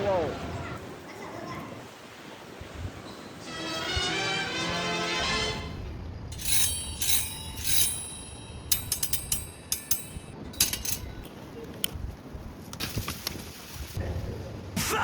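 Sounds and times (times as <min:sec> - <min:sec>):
metal clinking and rattling: 0:06.3 - 0:11.4.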